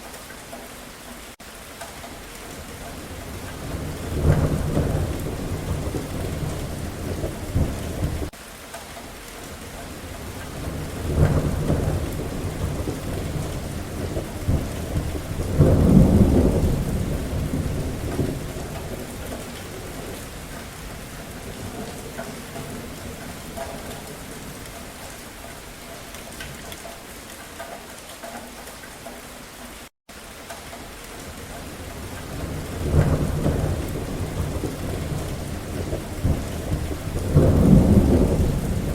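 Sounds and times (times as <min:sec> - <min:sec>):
steady rain: 0:00.0 - 0:38.9
thunder rumbling: 0:02.6 - 0:08.3, 0:10.0 - 0:25.1, 0:31.6 - 0:38.9.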